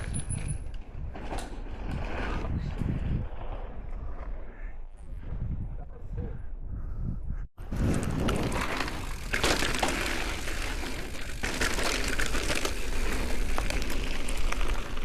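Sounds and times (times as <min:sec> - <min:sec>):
bike tyre noise on dirt: 0:00.0 - 0:05.8, 0:07.6 - 0:15.0
wind on microphone: 0:00.0 - 0:09.2
bike rattling over bumps: 0:07.6 - 0:15.0.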